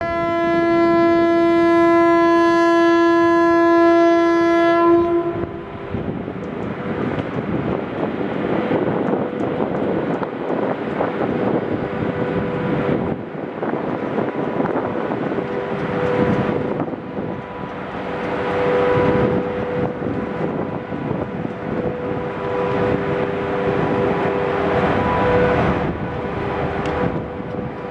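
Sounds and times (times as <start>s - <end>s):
train horn blast: 0.0s - 6.0s, 14.2s - 27.9s
train rumbling and clattering: 0.0s - 27.9s.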